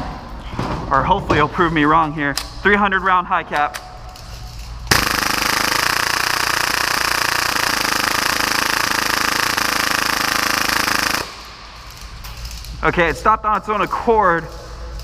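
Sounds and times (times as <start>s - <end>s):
airsoft pistol rapid firing: 4.9s - 11.5s.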